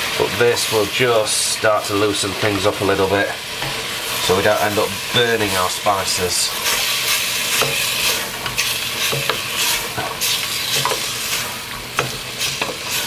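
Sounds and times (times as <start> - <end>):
spice paste sizzling in saucepan: 0.0 - 13.0
spoon scraping pan: 6.5 - 13.0.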